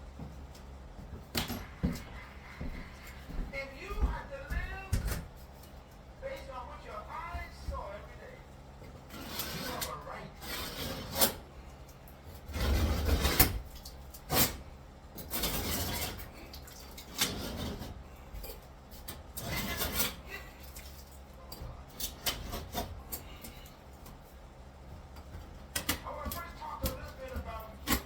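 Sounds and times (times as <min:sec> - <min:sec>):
rough scraping: 0:09.0 - 0:11.4, 0:15.4 - 0:16.3, 0:19.4 - 0:20.2.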